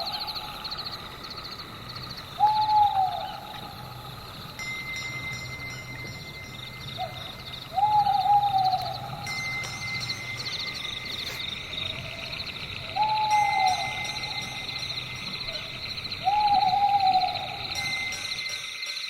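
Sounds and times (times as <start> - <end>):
owl calling: 0.0 - 4.0, 7.0 - 9.3, 11.1 - 18.2.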